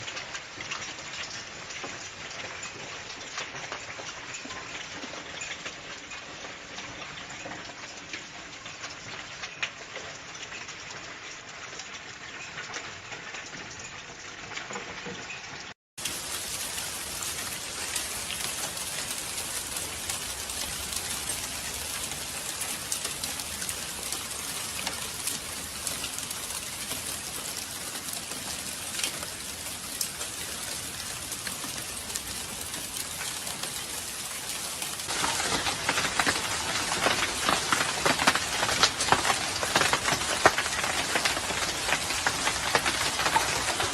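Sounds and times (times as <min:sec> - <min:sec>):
small stones pattering on hard surfaces: 0:16.0 - 0:43.9.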